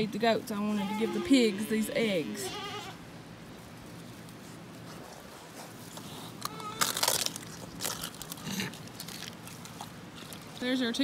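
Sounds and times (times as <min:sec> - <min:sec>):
pigs chewing crunching eggshells: 0:04.0 - 0:11.0.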